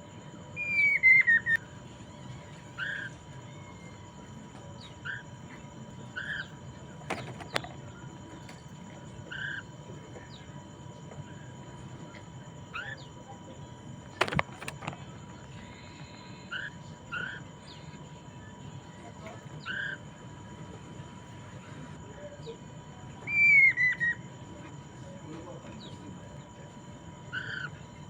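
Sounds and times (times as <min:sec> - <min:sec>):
bird chirping: 0:23.2 - 0:24.2.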